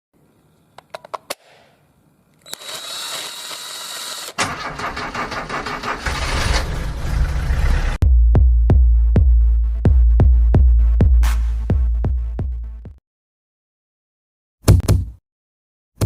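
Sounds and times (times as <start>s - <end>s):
car engine starting: 4.4s - 8.0s
electronic music with heavy beat: 8.2s - 13.0s.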